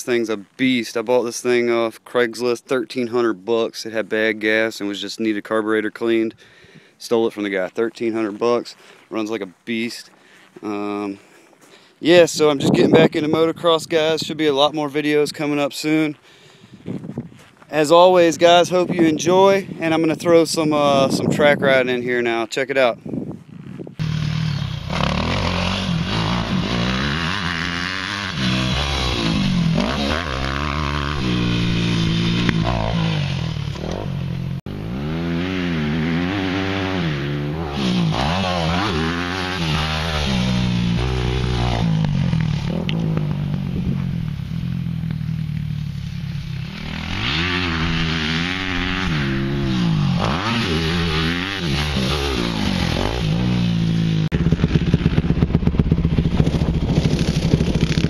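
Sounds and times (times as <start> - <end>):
dirt bike engine revving: 24.0 - 58.0.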